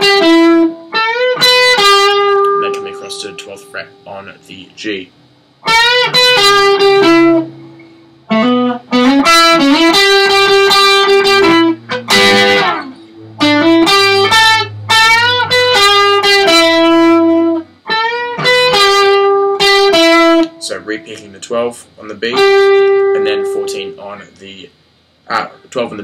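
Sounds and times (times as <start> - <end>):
electric guitar rock lead: 0.0 - 4.1, 5.6 - 20.6, 22.3 - 23.7.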